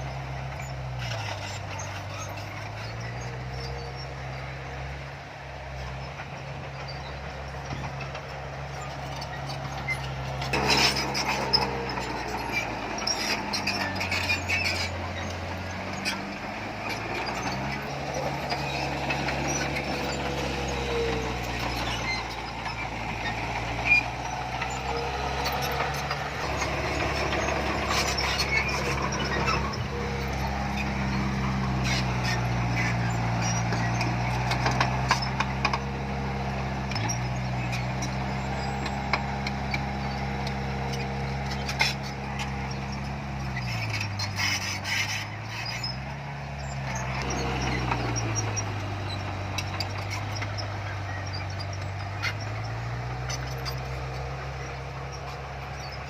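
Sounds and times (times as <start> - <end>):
heavy machinery diesel engine: 0.0 - 56.0
metallic clanks and rattles: 7.6 - 16.3.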